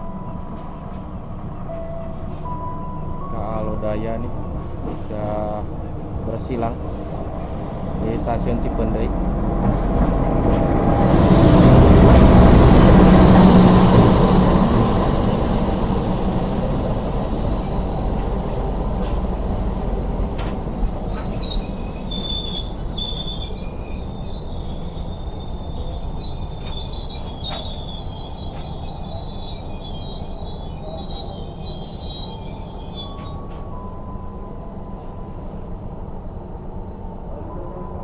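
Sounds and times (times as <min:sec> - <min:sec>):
train running on rails: 0:00.0 - 0:38.0
loud rush: 0:10.9 - 0:20.8
high-pitched wheel squeal: 0:11.0 - 0:33.8.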